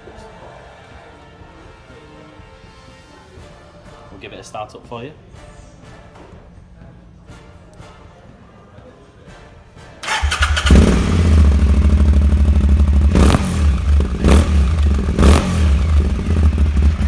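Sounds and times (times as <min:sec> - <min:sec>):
engine throttle blips: 0:10.0 - 0:17.0
motorcycle engine idling: 0:10.0 - 0:17.0
starter motor cranking: 0:10.1 - 0:11.2.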